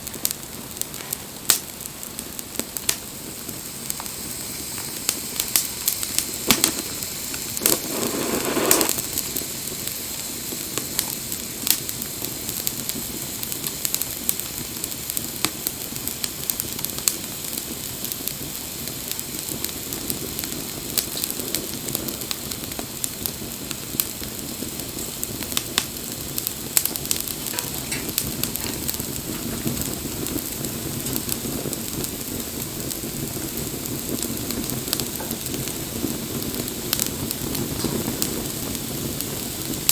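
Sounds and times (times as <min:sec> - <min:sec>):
campfire crackling and popping: 0:00.0 - 0:39.9
rush of flame: 0:00.0 - 0:39.9.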